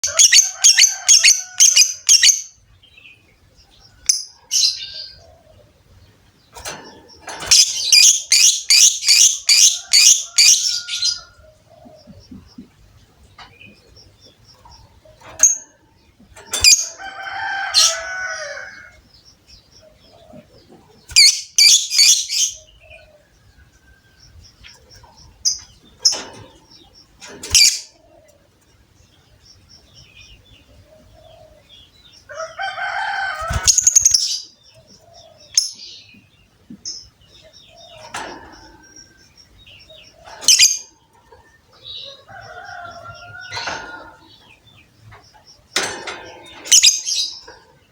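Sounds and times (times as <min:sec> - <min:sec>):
lovebirds chattering harshly: 0:04.1 - 0:19.2, 0:33.1 - 0:36.0, 0:36.8 - 0:47.9.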